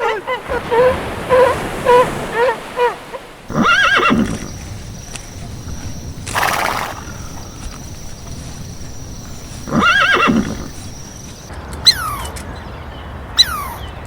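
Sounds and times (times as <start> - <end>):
short repeated animal calls: 0.0 - 12.3
horse snorting: 3.5 - 11.5
horse whinnying: 3.5 - 11.5.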